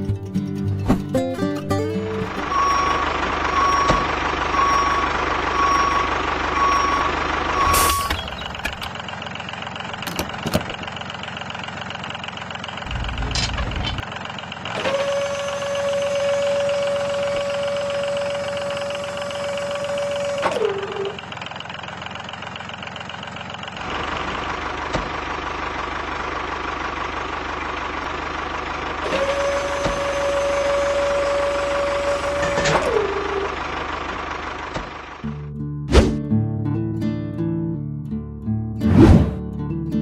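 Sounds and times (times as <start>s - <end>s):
vehicle running: 0.0s - 36.6s, 38.8s - 39.8s
reversing beeper: 2.2s - 8.9s, 14.8s - 21.2s, 29.1s - 33.6s
steady whining tone: 2.3s - 8.9s, 12.8s - 14.0s.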